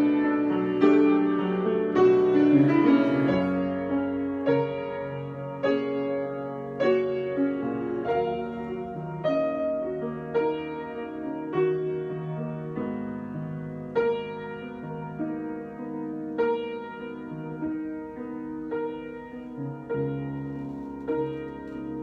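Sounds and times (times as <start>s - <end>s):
slow piano chords: 0.0s - 22.0s.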